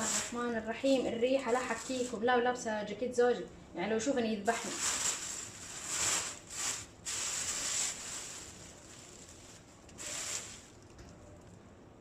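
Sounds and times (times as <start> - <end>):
plastic bag rustling and crinkling: 0.0 - 2.3, 4.4 - 11.1.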